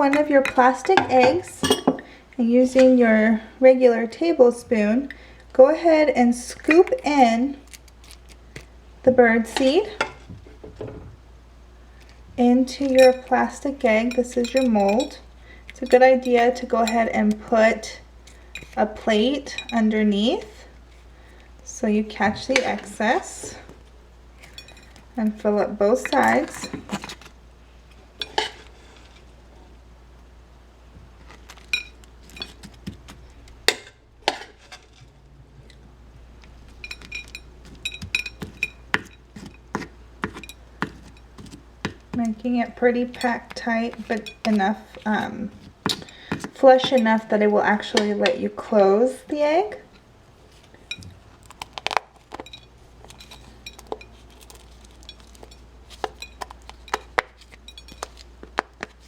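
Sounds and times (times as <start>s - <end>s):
metal spoon clinking and scraping: 0.4s - 2.0s, 12.8s - 13.4s, 14.0s - 17.1s, 24.4s - 25.0s, 28.2s - 29.2s, 31.3s - 32.7s, 36.7s - 48.5s, 51.8s - 59.0s.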